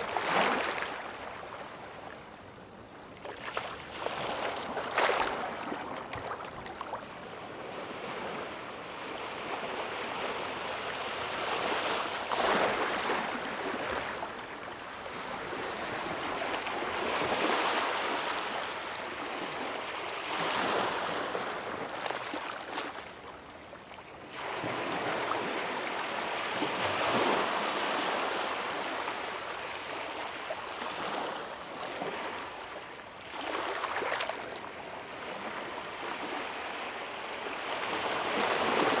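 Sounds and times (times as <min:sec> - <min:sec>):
ocean waves breaking on shore: 0:03.3 - 0:23.0, 0:24.3 - 0:39.0.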